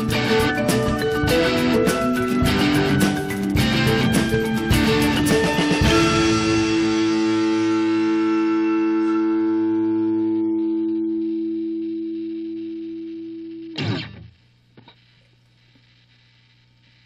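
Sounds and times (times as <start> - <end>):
distorted electric guitar chord: 0.0 - 14.3
faint low hum: 10.6 - 17.0.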